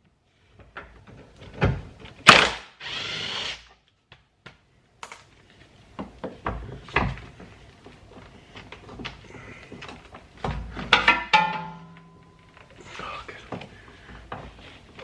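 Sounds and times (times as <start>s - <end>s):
power tool running: 2.8s - 3.7s.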